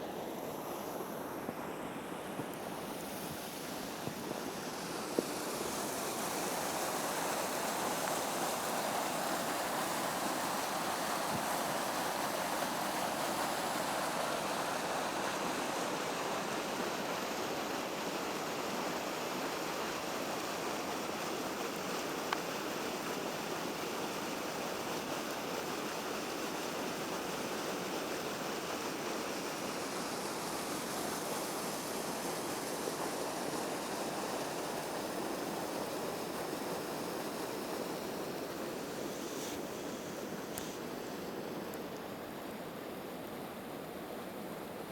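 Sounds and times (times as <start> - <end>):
small waterfall splashing: 2.4 - 44.9.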